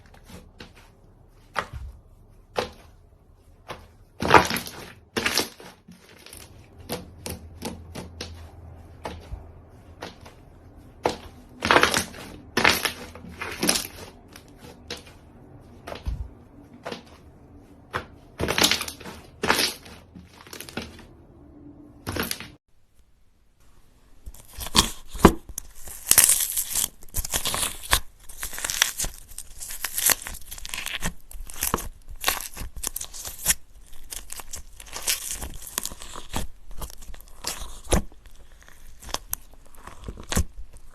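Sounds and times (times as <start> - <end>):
slime squished by hand: 24.3 - 40.9.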